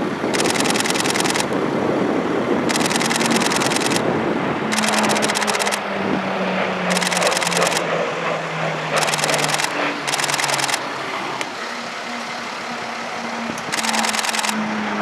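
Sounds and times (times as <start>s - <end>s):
low propeller hum: 0.0s - 15.0s
turboprop engines droning: 0.0s - 15.0s
camera shutters firing: 0.4s - 1.5s, 2.7s - 4.0s, 4.7s - 5.8s, 6.9s - 7.8s, 9.0s - 10.8s, 13.7s - 14.6s.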